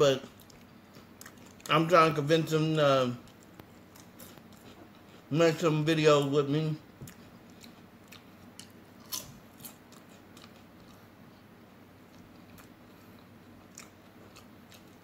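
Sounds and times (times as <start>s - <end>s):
person chewing with mouth clicks: 0.3s - 1.8s, 3.2s - 5.3s, 7.0s - 15.0s.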